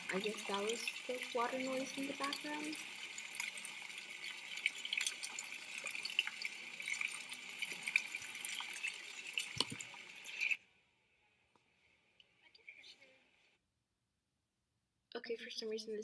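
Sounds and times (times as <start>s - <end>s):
running water rushing: 0.0s - 10.6s
water splashes and drips: 0.0s - 10.6s.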